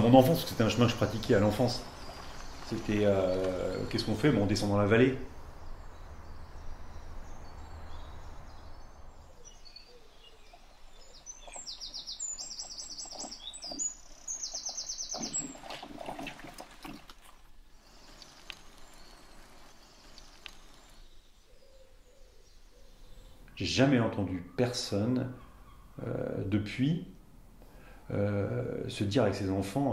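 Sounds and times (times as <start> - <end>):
birds singing: 0.0 - 17.0, 17.7 - 29.9
rustling: 15.3 - 21.1.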